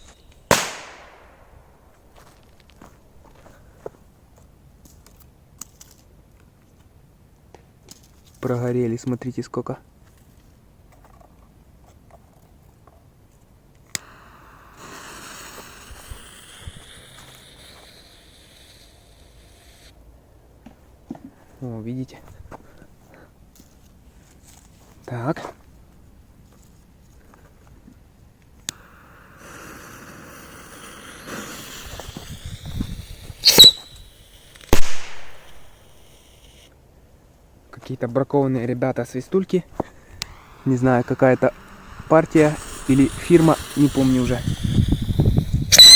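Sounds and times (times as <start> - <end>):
whistling firework hissing and whistling: 0.0 - 1.7, 14.0 - 20.0, 28.7 - 36.7, 39.9 - 45.9
firework bangs: 0.4 - 1.9, 29.3 - 35.8
sharp click: 33.4 - 33.9.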